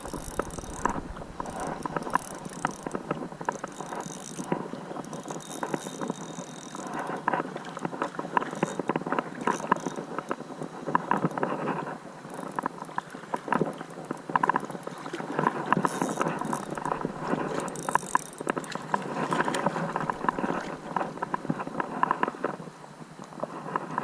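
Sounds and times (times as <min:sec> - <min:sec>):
fishing reel clicking: 0:00.0 - 0:07.4, 0:08.4 - 0:10.2, 0:12.2 - 0:15.1, 0:15.7 - 0:21.6.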